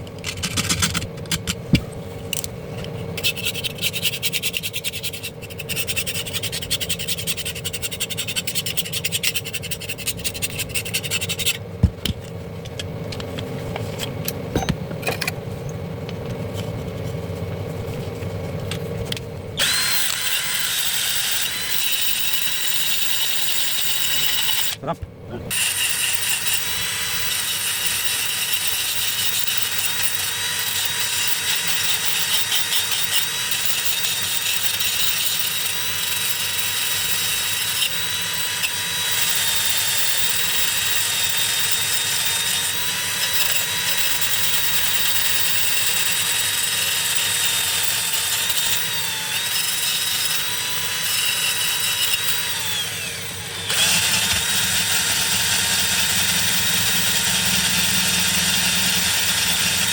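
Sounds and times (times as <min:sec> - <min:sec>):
power tool motor whining: 0:19.6 - 0:24.9, 0:25.5 - 0:59.9.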